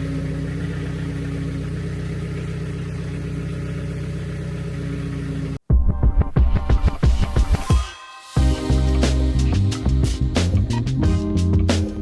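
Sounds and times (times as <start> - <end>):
tractor diesel engine idling: 0.0 - 5.6.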